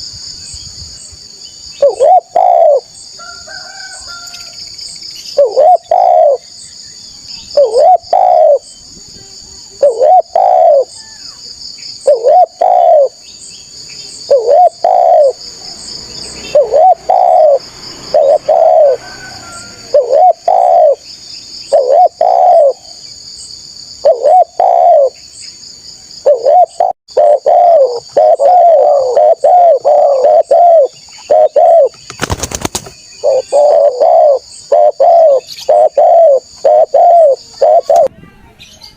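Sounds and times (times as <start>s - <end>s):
dove cooing: 1.8s - 2.9s, 5.4s - 6.5s, 7.6s - 8.7s, 9.7s - 11.0s, 12.0s - 13.2s, 14.3s - 15.8s, 16.4s - 21.1s, 21.7s - 23.0s, 24.0s - 25.2s, 26.2s - 32.5s, 33.2s - 38.1s.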